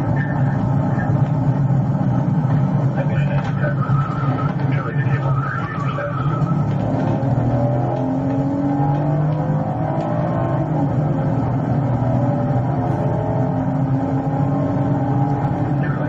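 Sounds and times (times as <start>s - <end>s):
car engine running hard: 0.0s - 16.0s
road and tyre noise: 0.0s - 16.0s.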